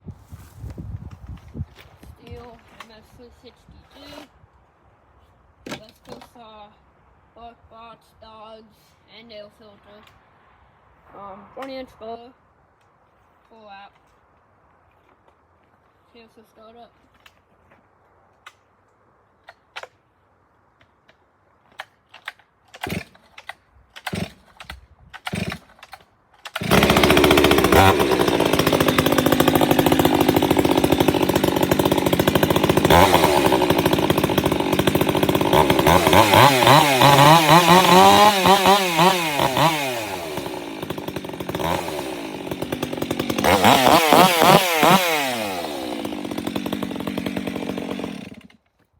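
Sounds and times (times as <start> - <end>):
chainsaw starter cord pulls: 3.9 - 4.3, 21.7 - 48.9
chainsaw engine idling and revving: 22.8 - 48.6.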